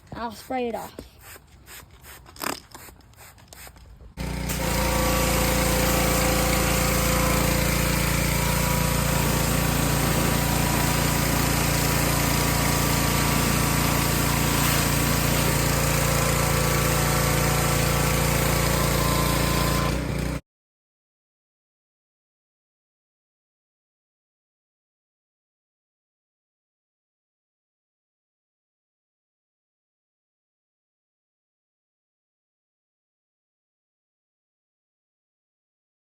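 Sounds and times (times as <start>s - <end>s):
pressure washer drone: 4.2s - 20.4s.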